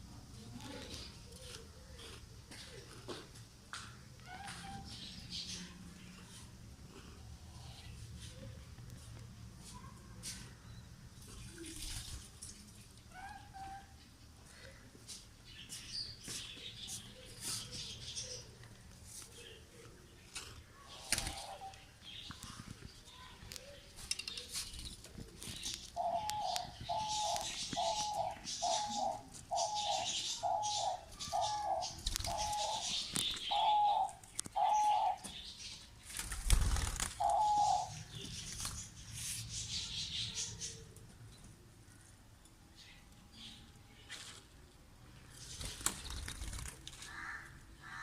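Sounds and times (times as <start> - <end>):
dove cooing: 26.0 - 35.3, 37.2 - 38.0.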